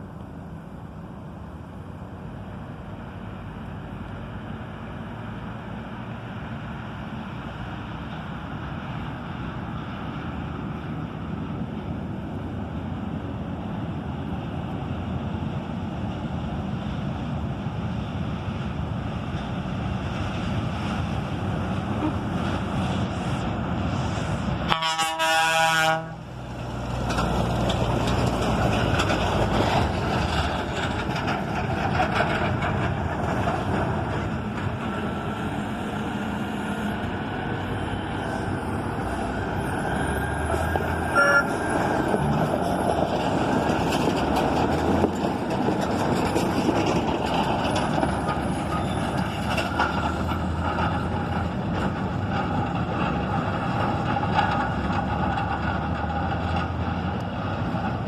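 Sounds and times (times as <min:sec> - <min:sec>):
truck diesel engines running: 0:00.0 - 0:58.0
air horn blast: 0:24.7 - 0:26.2, 0:41.1 - 0:41.6.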